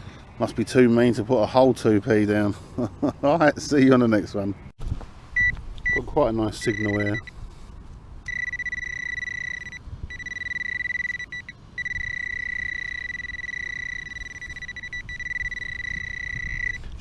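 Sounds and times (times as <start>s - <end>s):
metal detector high-pitched tone: 5.4s - 7.3s, 8.3s - 16.8s.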